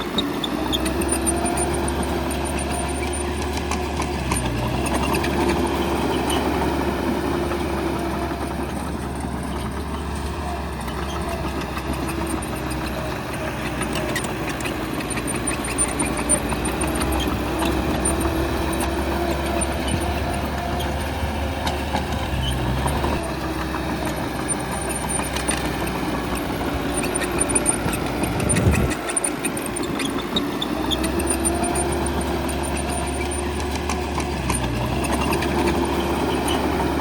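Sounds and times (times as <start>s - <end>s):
bulldozer diesel engine running: 0.0s - 37.0s.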